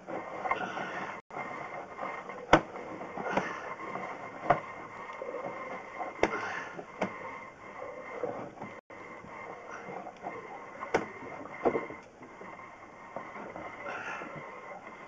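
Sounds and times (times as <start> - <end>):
sharp clicks and knocks: 2.2 - 7.2, 9.9 - 12.3.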